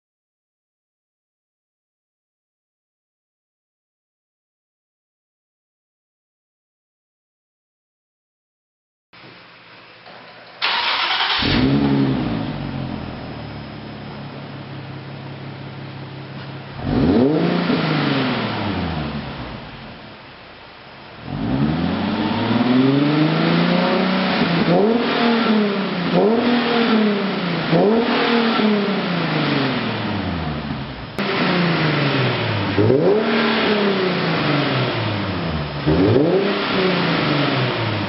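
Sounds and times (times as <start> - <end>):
car engine revving: 10.6 - 20.0, 21.2 - 38.0.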